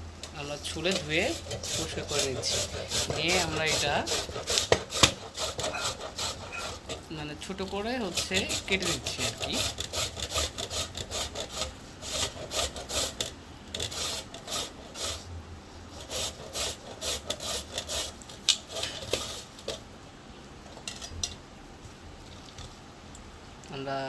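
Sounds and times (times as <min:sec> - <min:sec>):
knife cutting on a cutting board: 0:00.8 - 0:07.0, 0:07.6 - 0:15.2.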